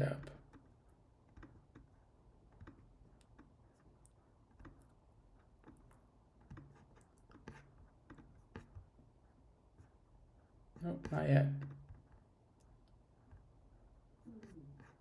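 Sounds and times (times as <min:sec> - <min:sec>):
low room hum: 0:00.0 - 0:15.0
computer mouse clicking: 0:01.3 - 0:05.0.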